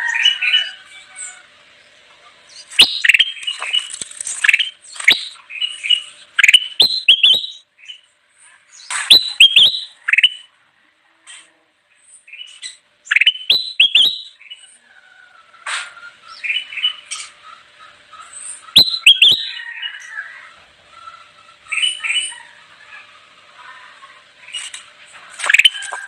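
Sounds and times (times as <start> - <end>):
bulbul singing whistled notes: 2.6 - 8.0, 9.0 - 10.5, 12.4 - 14.6, 18.7 - 19.6, 25.4 - 26.0.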